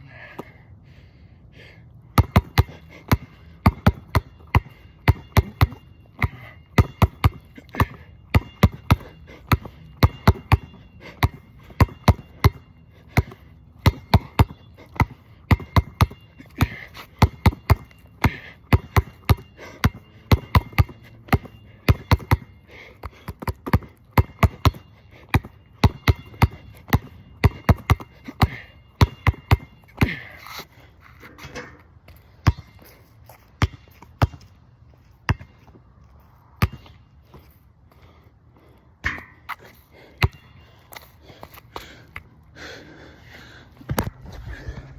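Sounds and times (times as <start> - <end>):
basketball bouncing on court: 2.2 - 30.2, 32.4 - 32.8, 33.6 - 34.5, 35.3 - 35.7, 36.6 - 37.0.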